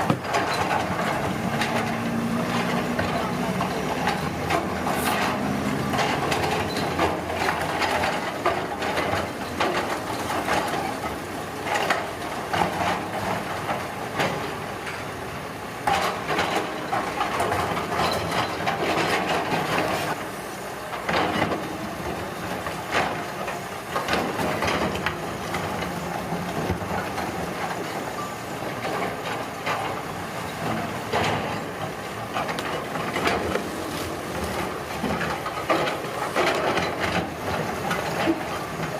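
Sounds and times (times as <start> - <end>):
road construction machinery engine: 0.0 - 38.9
knocks and scrapes of material: 4.8 - 5.4.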